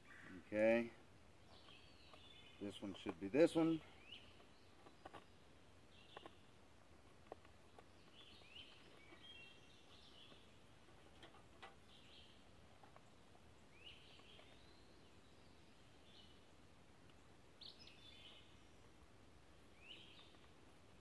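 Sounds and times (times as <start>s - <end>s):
faint birdsong: 0.0s - 21.0s.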